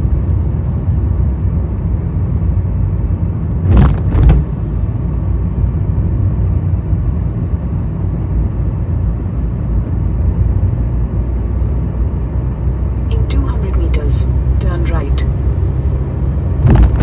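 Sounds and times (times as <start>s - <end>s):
vehicle engine rumble: 0.0s - 17.0s
tyre noise on road: 2.9s - 5.1s, 16.5s - 17.0s.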